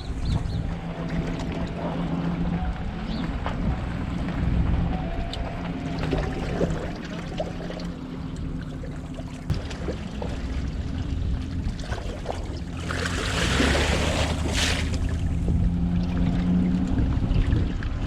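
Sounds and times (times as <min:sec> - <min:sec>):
low steady hum: 0:00.0 - 0:18.0
water sloshing and splashing: 0:00.0 - 0:18.0
water scooped and poured: 0:12.8 - 0:15.1.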